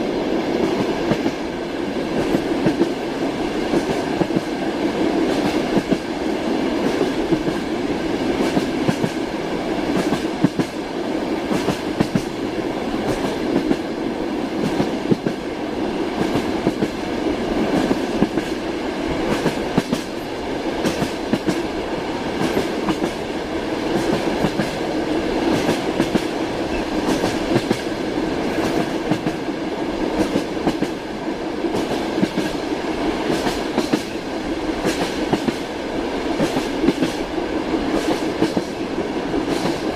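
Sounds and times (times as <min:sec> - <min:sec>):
train rolling rumble: 0:00.0 - 0:39.9
train wheels clattering: 0:09.9 - 0:10.8, 0:11.4 - 0:12.4, 0:19.2 - 0:21.7, 0:23.8 - 0:29.6, 0:33.2 - 0:35.6, 0:36.3 - 0:37.3.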